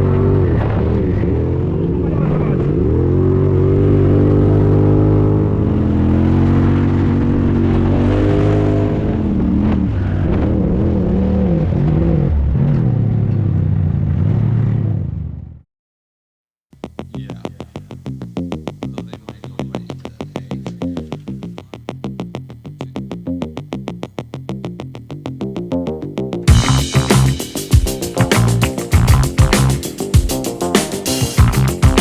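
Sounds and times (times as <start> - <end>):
vehicle engine revving: 0.0 - 15.4, 26.5 - 32.0.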